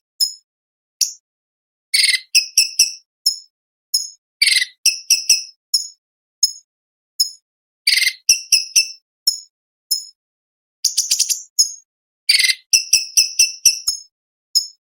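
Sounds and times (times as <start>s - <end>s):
bird rasping chatter: 2.0s - 3.4s, 4.4s - 5.5s, 10.9s - 14.0s
bird singing high chirps: 2.0s - 6.6s, 7.2s - 10.2s, 10.8s - 14.8s.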